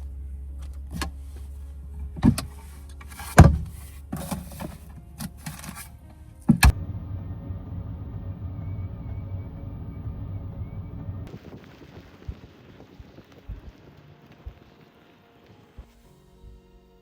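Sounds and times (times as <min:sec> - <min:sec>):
knocks and clunks: 0:03.3 - 0:04.8
steady low hum: 0:06.5 - 0:11.4.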